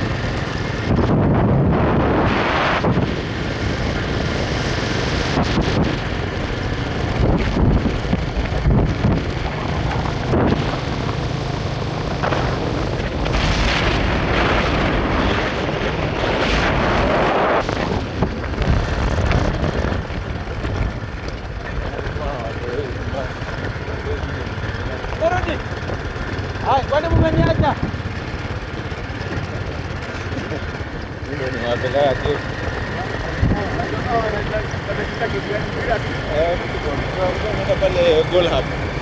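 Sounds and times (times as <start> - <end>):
wind rushing over microphone: 0.0 - 28.7, 32.5 - 35.2
vehicle road and engine rumble: 0.0 - 39.0.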